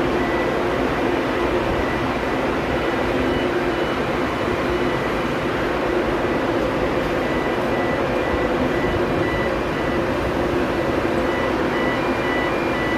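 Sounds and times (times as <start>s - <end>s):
machinery hum: 0.0s - 12.9s
faint high beep: 0.2s - 0.7s, 3.1s - 5.2s, 6.3s - 10.1s, 10.8s - 12.9s.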